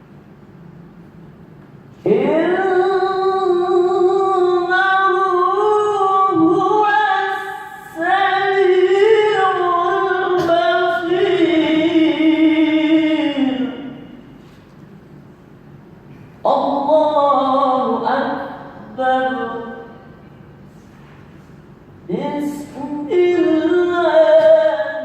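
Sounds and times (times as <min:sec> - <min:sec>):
person reciting melodically: 0:02.0 - 0:14.4, 0:16.4 - 0:20.2, 0:22.1 - 0:25.0.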